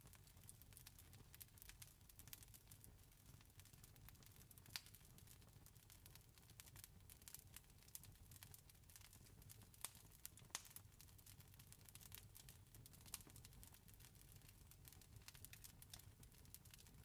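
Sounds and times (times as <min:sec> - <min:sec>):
campfire crackling: 0:00.0 - 0:17.0
burning wood popping: 0:06.6 - 0:17.0.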